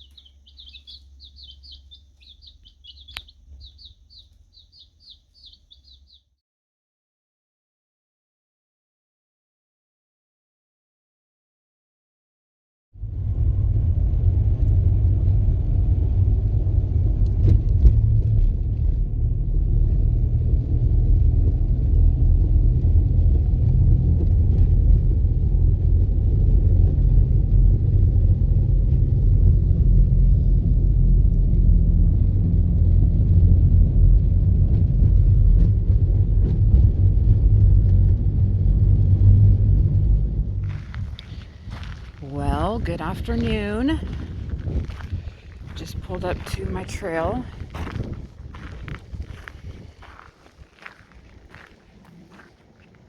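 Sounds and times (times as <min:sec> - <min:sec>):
car engine and road noise: 0:13.0 - 0:53.0.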